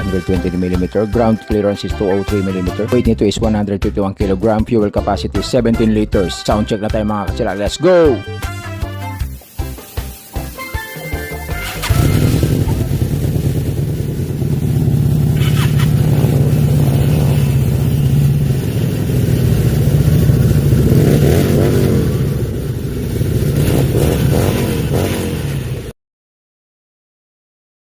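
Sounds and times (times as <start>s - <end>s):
motorcycle engine idling: 11.6s - 25.9s.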